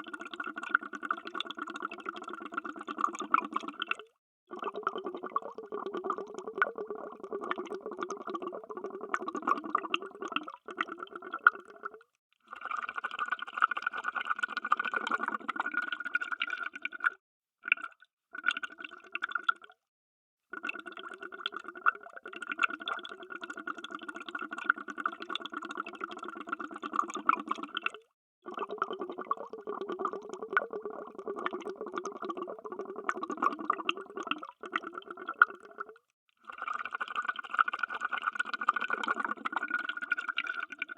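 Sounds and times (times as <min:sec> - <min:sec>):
underwater bubbling: 0:00.0 - 0:12.1, 0:20.6 - 0:36.0, 0:36.6 - 0:40.9.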